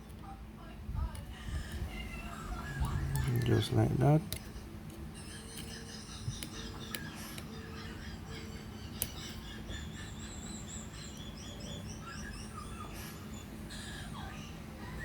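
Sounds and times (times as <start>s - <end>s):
faint bird chirping: 5.2s - 15.0s.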